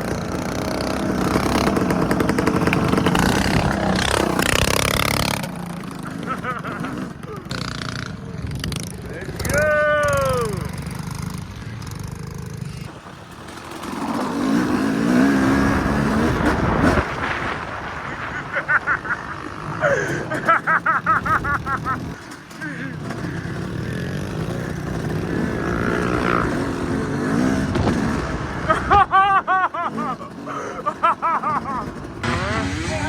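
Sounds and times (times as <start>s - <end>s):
mini bike engines revving: 0.0s - 33.0s
people's voices: 2.2s - 13.0s, 29.8s - 33.0s.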